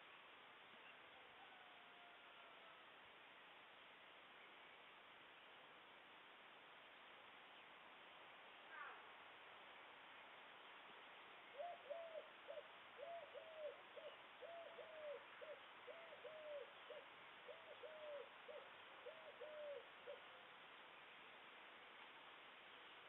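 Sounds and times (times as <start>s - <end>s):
bird cooing: 11.5s - 20.4s.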